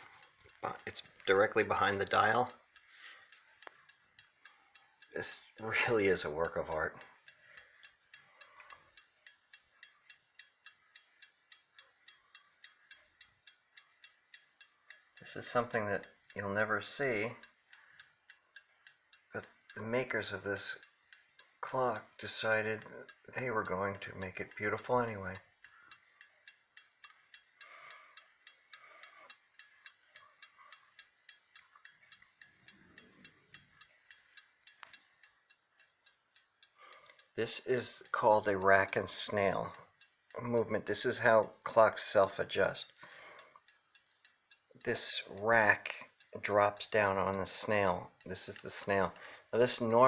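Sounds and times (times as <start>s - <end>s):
clock ticking: 0.0s - 50.0s.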